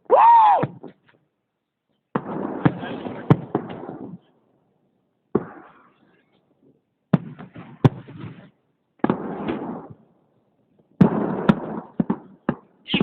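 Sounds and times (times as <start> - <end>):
fireworks bangs: 0.0 - 1.0, 2.1 - 4.3, 5.3 - 6.2, 7.1 - 10.1, 11.0 - 13.0
fireworks crackling rumble: 2.1 - 4.5, 7.2 - 10.1, 10.8 - 13.0.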